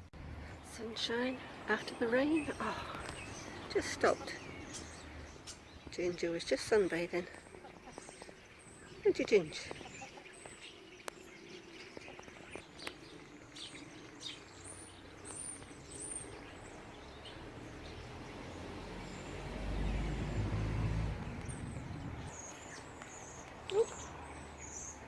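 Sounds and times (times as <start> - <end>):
small birds chirping: 0.0 - 25.0
low rumble: 19.4 - 22.3.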